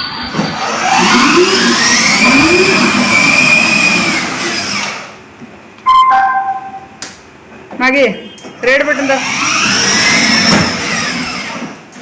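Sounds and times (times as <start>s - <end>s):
toy car electric motors whirring: 0.2s - 5.2s, 8.8s - 11.8s
two-note electronic beep: 5.8s - 7.0s.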